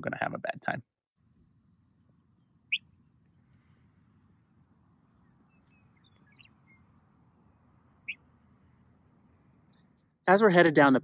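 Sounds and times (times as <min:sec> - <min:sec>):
open-air background noise: 0:00.0 - 0:11.0
bird chirp: 0:01.9 - 0:10.2.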